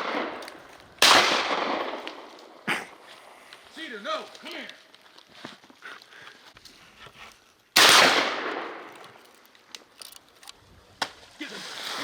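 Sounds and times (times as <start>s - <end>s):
shotgun shot: 1.0s - 2.3s, 7.8s - 8.8s.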